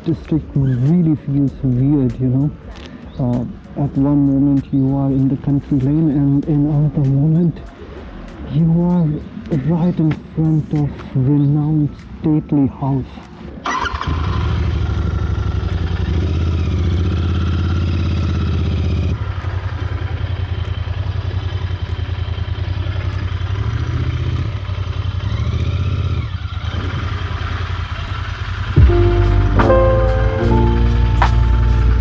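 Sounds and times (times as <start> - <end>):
motorcycle engine running: 13.8 - 32.0
music: 28.8 - 32.0.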